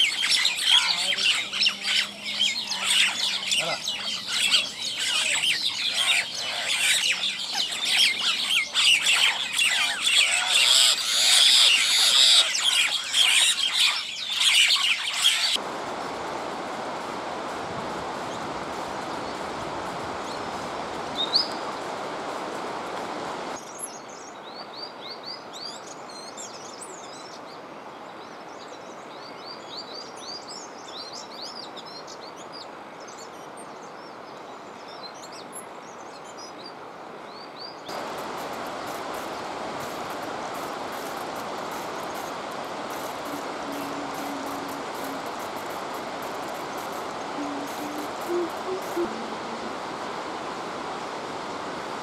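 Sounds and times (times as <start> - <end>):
small birds chirping: 0.0 - 15.6, 28.2 - 49.7
steady rushing noise: 15.6 - 23.6, 37.9 - 52.0.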